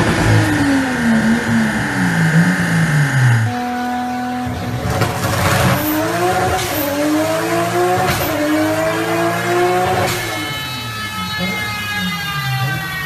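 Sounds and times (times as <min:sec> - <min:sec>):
car engine revving at full throttle: 0:00.0 - 0:13.0.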